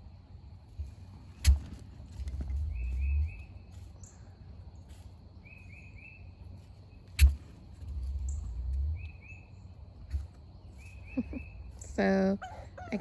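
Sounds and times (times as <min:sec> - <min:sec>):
low rumble: 0:00.0 - 0:04.8, 0:06.3 - 0:12.3
bird calling: 0:01.4 - 0:04.3, 0:06.9 - 0:13.0.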